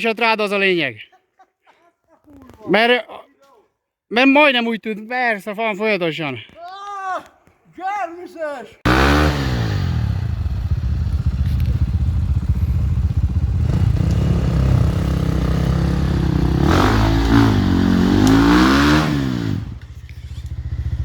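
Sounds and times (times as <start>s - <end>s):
motorcycle engine revving: 8.9s - 21.0s.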